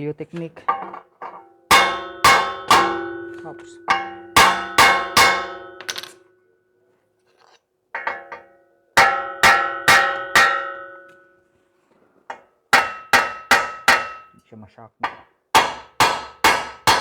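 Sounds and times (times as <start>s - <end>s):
hammer striking steel: 0.7s - 6.3s, 8.0s - 11.3s, 12.3s - 14.4s, 15.0s - 17.0s.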